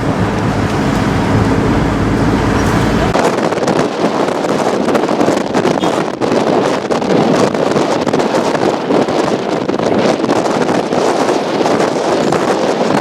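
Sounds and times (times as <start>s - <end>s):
traffic engine hum: 0.0s - 3.2s
wind noise on microphone: 0.0s - 13.0s.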